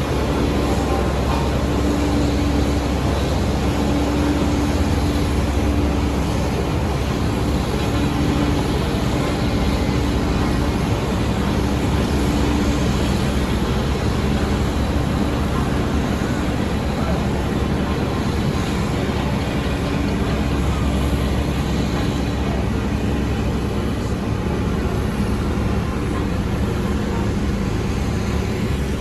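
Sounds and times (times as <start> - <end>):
heavy diesel machinery drone: 0.0 - 29.0.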